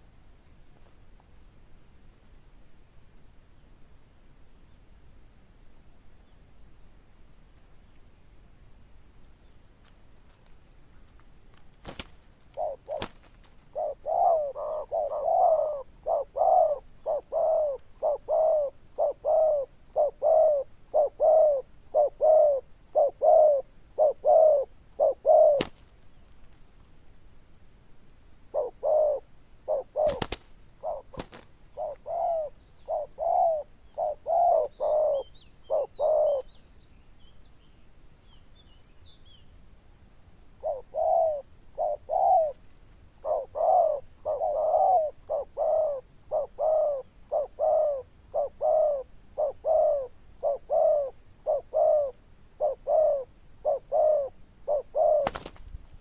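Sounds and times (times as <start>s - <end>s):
dove cooing: 12.5s - 25.8s, 28.5s - 36.5s, 40.6s - 42.6s, 43.2s - 55.6s
faint small bird chirps: 31.8s - 39.5s.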